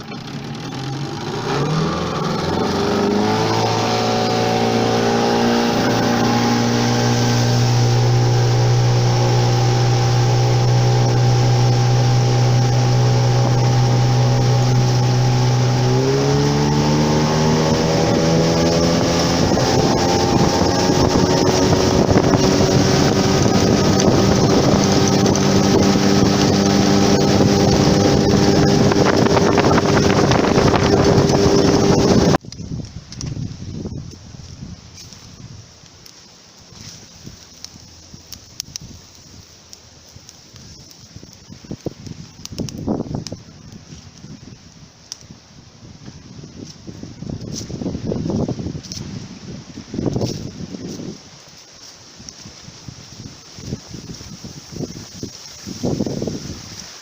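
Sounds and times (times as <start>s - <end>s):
engine running under load: 0.0s - 32.4s
rushing wind noise: 0.7s - 57.0s.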